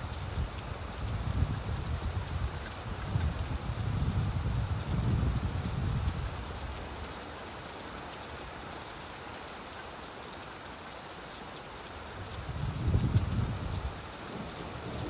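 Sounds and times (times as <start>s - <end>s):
steady rainfall: 0.0s - 15.0s
low rumble of thunder: 12.4s - 15.0s.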